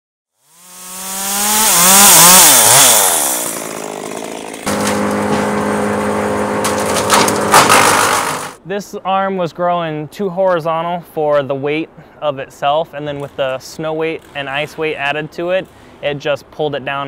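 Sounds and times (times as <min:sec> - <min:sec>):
chainsaw running at high revs: 0:00.4 - 0:08.6.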